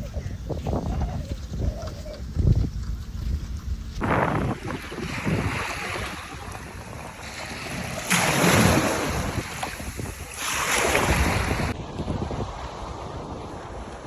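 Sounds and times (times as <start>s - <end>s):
sea and wind rushing: 0.0s - 14.0s
waves splashing: 4.0s - 14.0s.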